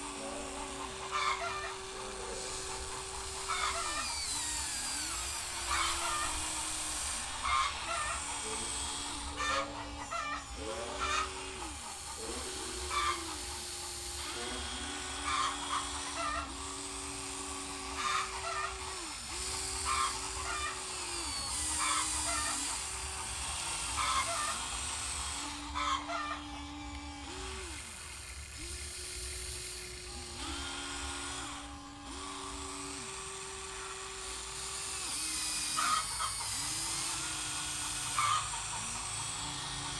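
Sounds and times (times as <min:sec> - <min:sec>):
chickens clucking: 0:00.0 - 0:04.2, 0:05.5 - 0:13.6, 0:18.0 - 0:18.8, 0:23.9 - 0:24.7, 0:25.8 - 0:26.4, 0:38.2 - 0:39.9
electric pump motor whine: 0:00.0 - 0:39.9.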